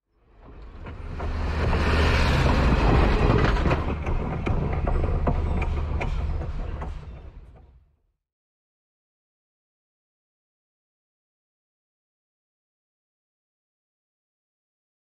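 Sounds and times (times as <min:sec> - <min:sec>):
train rumbling past: 0:00.2 - 0:07.8
wheels clicking on rails: 0:00.3 - 0:07.6.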